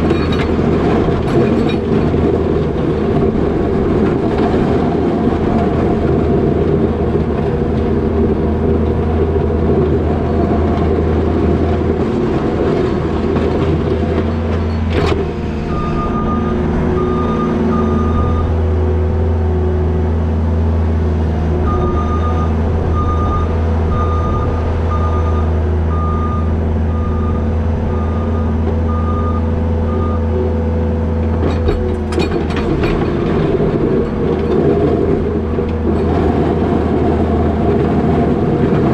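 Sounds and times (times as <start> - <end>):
diesel engine running: 0.0 - 38.9
backup alarm beeping: 15.7 - 18.6, 21.7 - 30.2.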